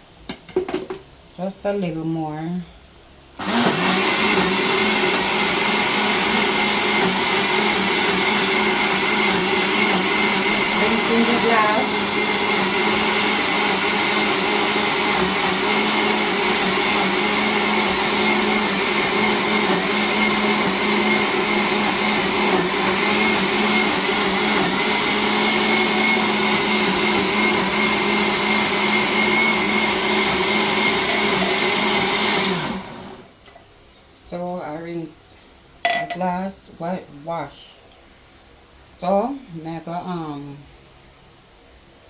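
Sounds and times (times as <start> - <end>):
blender motor whining: 3.4 - 33.3.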